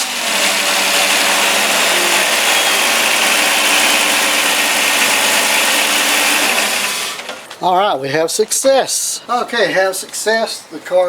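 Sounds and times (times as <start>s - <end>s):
car engine running: 0.4s - 6.9s.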